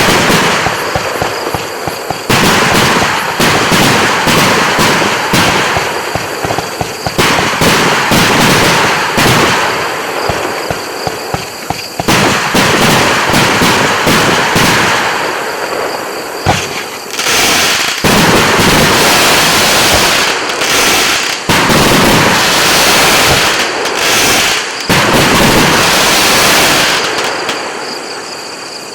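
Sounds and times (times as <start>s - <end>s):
fireworks firing and crackling: 0.0s - 27.8s.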